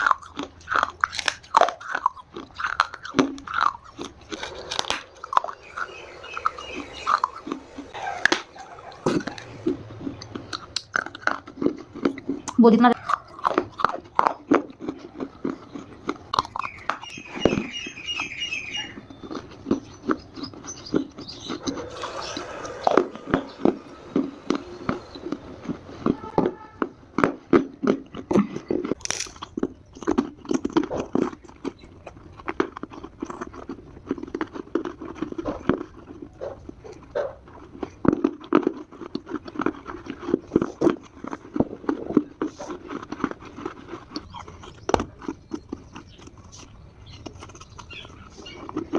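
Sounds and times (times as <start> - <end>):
clay being chewed with crunches: 0.0 - 48.9
high-pitched chirping: 4.4 - 9.6, 16.6 - 26.8.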